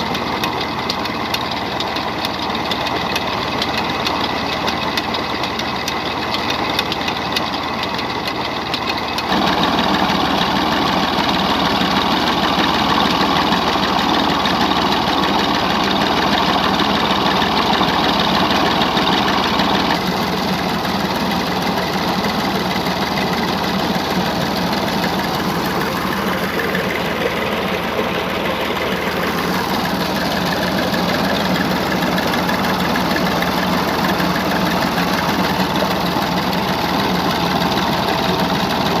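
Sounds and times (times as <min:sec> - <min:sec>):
tractor engine under heavy load: 0:00.0 - 0:39.0.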